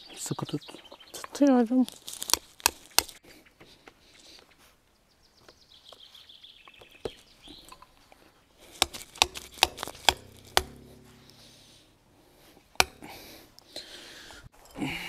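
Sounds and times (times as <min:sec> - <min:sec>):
hammer striking metal stake: 0:08.6 - 0:13.6.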